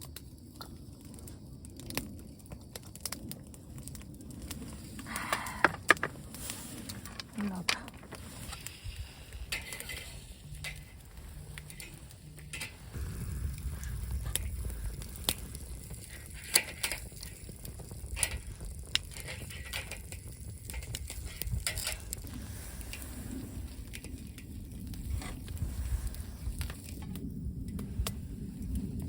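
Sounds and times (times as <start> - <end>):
low rumble: 3.5 - 19.1, 20.4 - 29.0
faint sizzle: 6.2 - 29.0.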